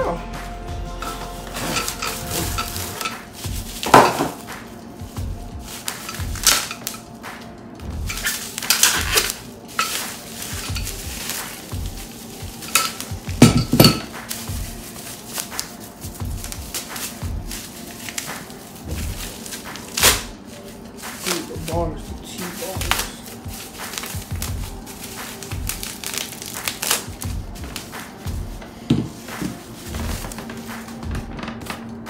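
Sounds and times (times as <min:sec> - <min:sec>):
metal parts clinking and clanking: 0:01.0 - 0:03.2, 0:06.0 - 0:07.0, 0:08.1 - 0:11.0, 0:12.6 - 0:14.2.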